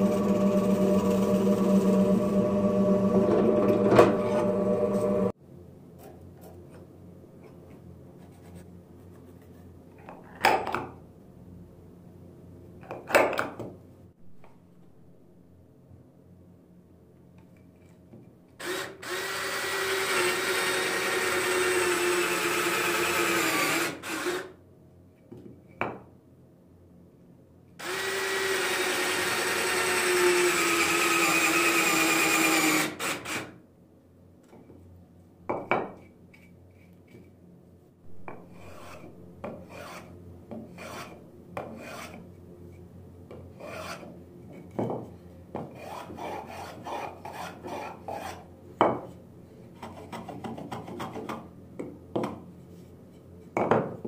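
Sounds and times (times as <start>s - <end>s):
cordless drill boring into wood: 18.6s - 24.5s, 27.8s - 33.5s
hand file scraping wood: 38.3s - 42.2s, 43.5s - 44.1s, 45.6s - 48.5s.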